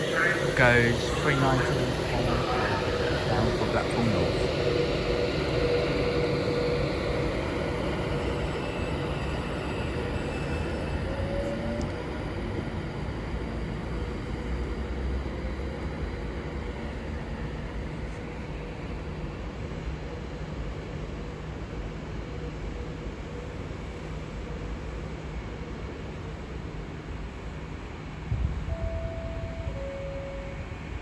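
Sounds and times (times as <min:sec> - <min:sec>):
electric train pulling away: 0:00.0 - 0:25.4, 0:28.6 - 0:31.0.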